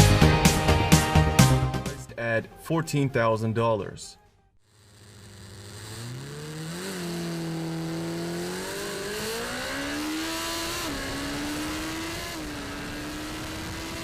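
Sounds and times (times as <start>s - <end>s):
motorcycle engine accelerating: 4.6s - 14.0s.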